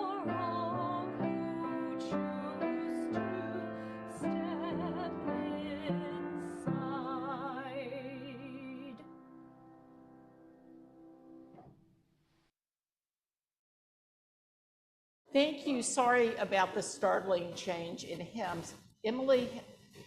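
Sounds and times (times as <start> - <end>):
piano chords: 0.0 - 11.8.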